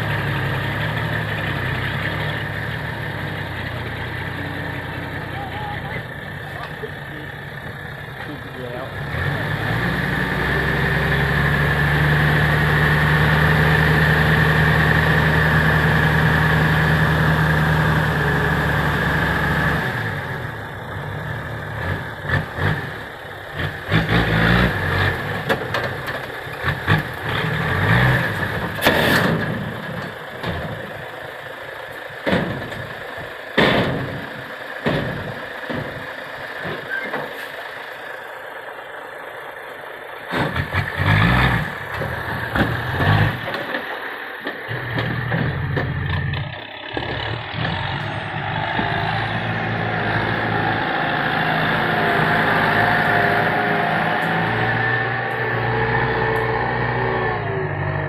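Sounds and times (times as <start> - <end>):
diesel truck engine running: 0.0 - 58.0
irregular knocks and clunks: 32.2 - 32.9, 33.6 - 37.5, 41.9 - 46.4.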